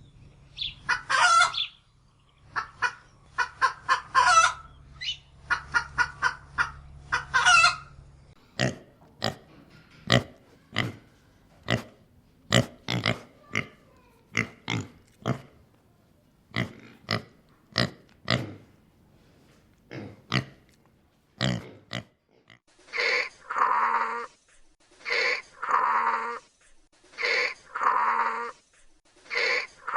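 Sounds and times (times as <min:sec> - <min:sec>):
hen clucking: 0:00.6 - 0:01.8, 0:02.4 - 0:08.0
pig grunting: 0:08.4 - 0:15.6, 0:16.5 - 0:18.8, 0:19.9 - 0:20.7, 0:21.4 - 0:24.3, 0:25.0 - 0:26.4, 0:27.2 - 0:28.6, 0:29.3 - 0:29.9.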